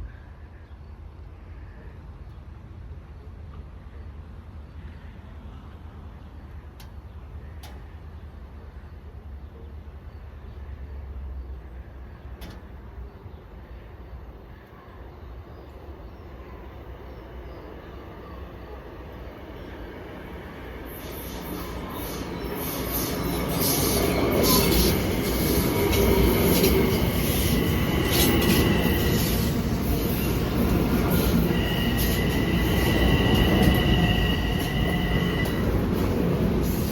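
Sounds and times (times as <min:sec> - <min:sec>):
low rumble of approaching train: 0:00.0 - 0:36.9
thin wheel squeal: 0:20.9 - 0:35.8.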